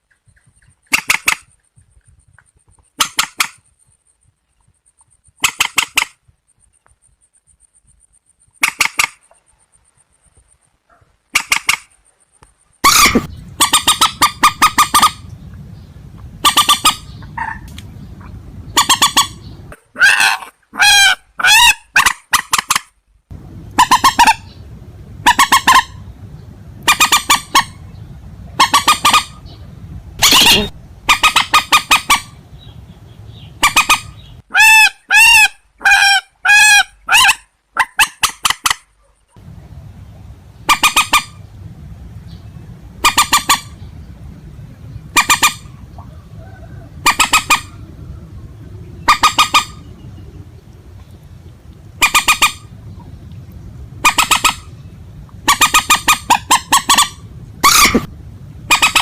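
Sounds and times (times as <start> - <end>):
steady low hum: 11.9 - 19.8, 23.0 - 34.5, 39.2 - 59.0
harsh honking bird calls: 12.8 - 15.3, 16.3 - 22.2, 26.8 - 37.4, 55.4 - 58.1.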